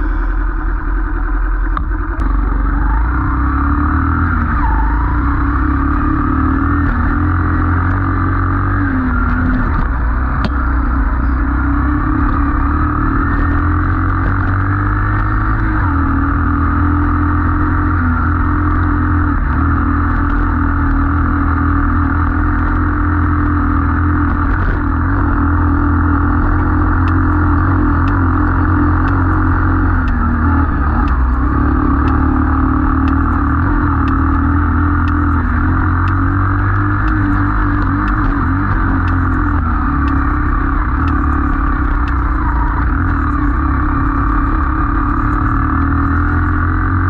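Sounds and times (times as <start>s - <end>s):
small motorcycle engine running: 0.0s - 47.0s
faint regular ticks: 23.9s - 47.0s.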